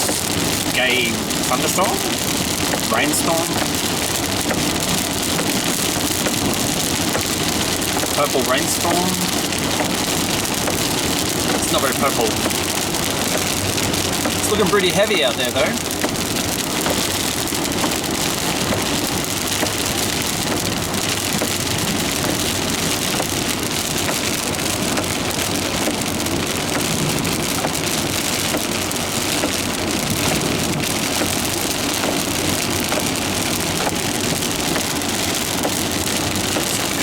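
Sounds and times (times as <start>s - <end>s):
heavy rain on car roof: 0.0s - 37.0s
tyre and road noise: 0.0s - 37.0s.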